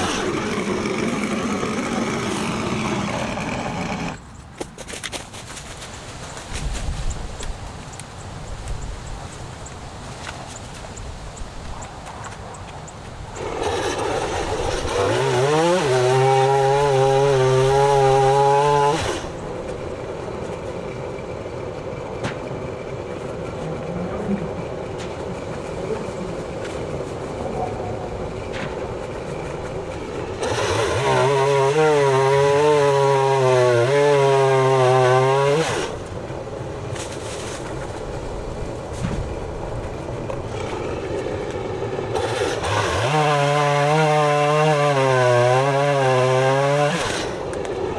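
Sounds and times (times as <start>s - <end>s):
chainsaw idling: 0.0s - 4.2s, 13.3s - 37.1s, 39.9s - 47.9s
chainsaw revving and cutting wood: 0.0s - 4.2s, 13.3s - 27.4s, 28.1s - 36.3s, 40.2s - 47.9s.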